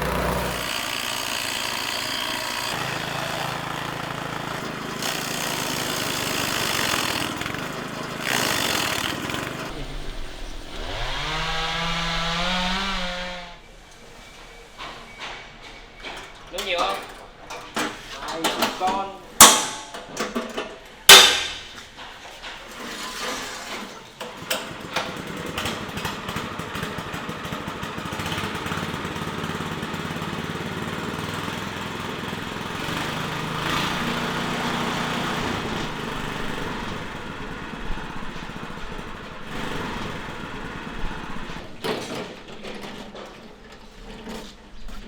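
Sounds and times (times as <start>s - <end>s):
small engine running: 0.0s - 13.6s, 24.7s - 41.6s.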